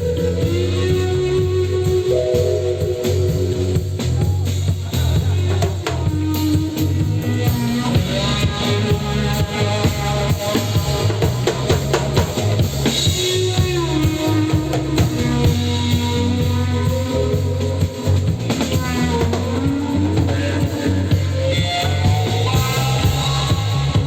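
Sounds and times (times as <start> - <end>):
bass line: 0.0 - 24.0
drum kit beat: 0.0 - 24.0
keyboard and guitar lines: 0.0 - 24.0.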